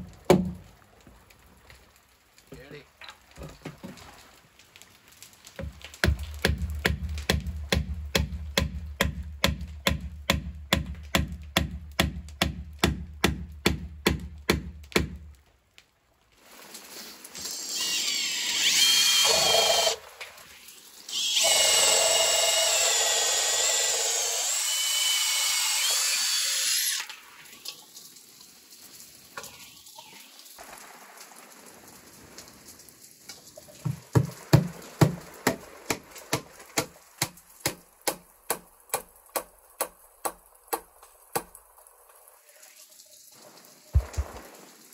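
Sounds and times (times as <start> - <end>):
cordless drill boring into wood: 17.4 - 20.0, 21.1 - 27.1.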